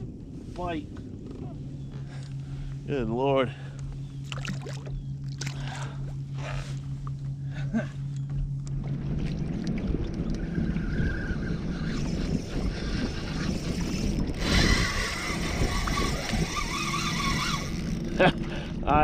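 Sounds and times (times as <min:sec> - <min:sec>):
wind noise on microphone: 0:00.0 - 0:02.8, 0:08.9 - 0:19.0
steady low hum: 0:00.0 - 0:19.0
water splashing: 0:04.2 - 0:06.0.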